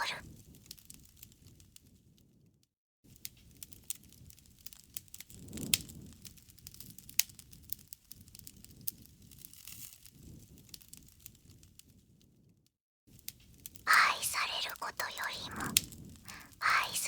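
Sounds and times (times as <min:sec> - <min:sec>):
low rumble of burning wood: 0:03.1 - 0:12.2, 0:13.1 - 0:13.8, 0:14.4 - 0:16.6
campfire crackling and popping: 0:03.3 - 0:11.4, 0:13.2 - 0:17.0.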